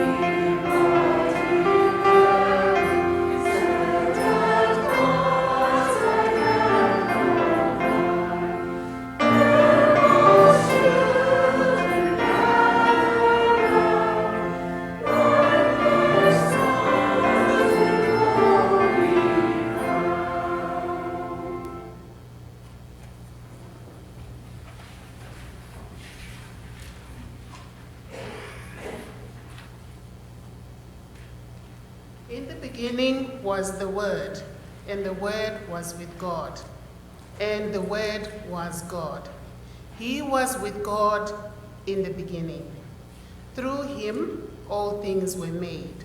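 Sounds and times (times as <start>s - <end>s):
church choir singing: 0.0s - 22.2s.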